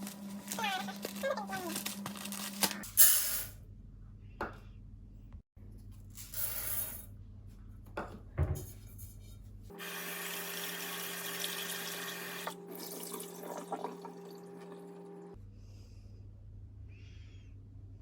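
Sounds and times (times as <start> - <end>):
water running from a tap: 9.8 - 15.2.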